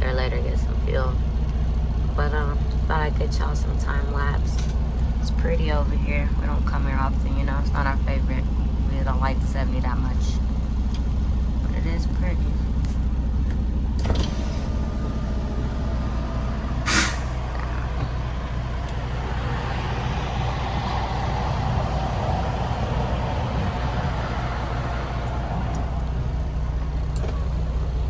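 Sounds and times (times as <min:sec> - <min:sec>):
diesel truck engine droning: 0:00.0 - 0:28.0
road noise: 0:00.0 - 0:28.0
air hiss: 0:15.1 - 0:18.0.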